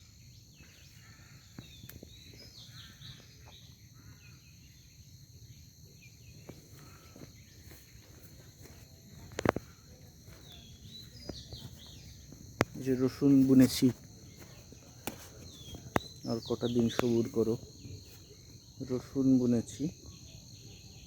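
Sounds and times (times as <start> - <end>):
bird chirps: 0.0 - 5.1, 9.4 - 19.0
insect chorus: 0.0 - 21.0.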